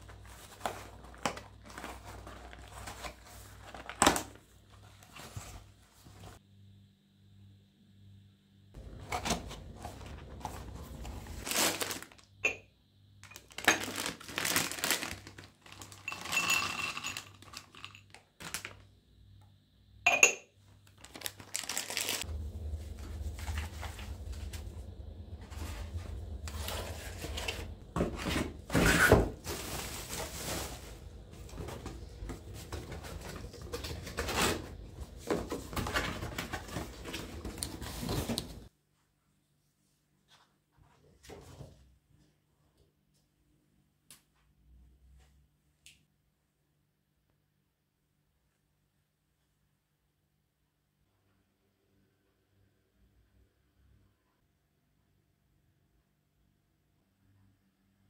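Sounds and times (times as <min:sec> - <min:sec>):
low steady hum: 0:00.0 - 0:38.7
rustling and scraping: 0:21.1 - 0:38.7.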